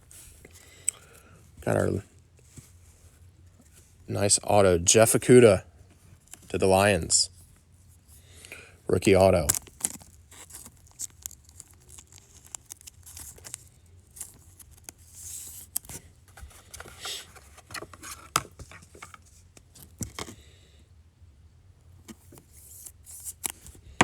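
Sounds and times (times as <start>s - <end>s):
cards brushing: 9.0s - 20.4s, 22.0s - 24.0s
trading cards clicking and rustling: 9.0s - 20.4s, 22.1s - 24.0s.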